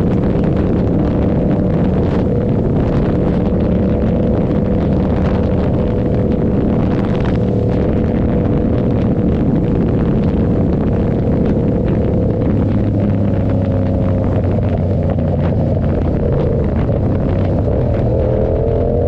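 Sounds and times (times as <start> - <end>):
loud motorcycle engine running: 0.0 - 19.0.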